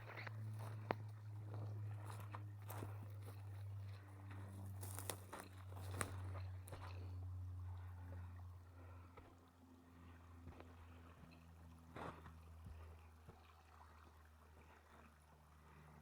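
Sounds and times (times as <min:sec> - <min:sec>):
footsteps on icy snow: 0:04.7 - 0:06.2.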